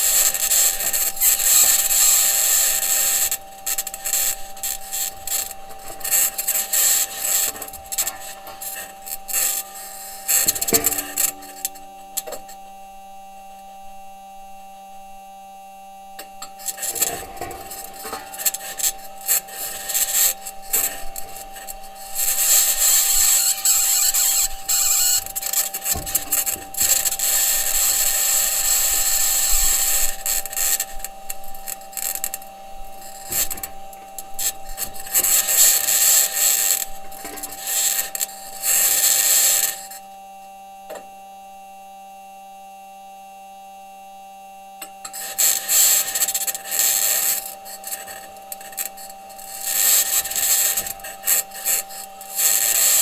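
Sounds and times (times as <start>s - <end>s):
high-pitched scraping: 0.0s - 12.7s, 16.2s - 40.0s
faint steady hum: 0.0s - 53.0s
rover wheels rattling over rocks: 16.7s - 39.9s.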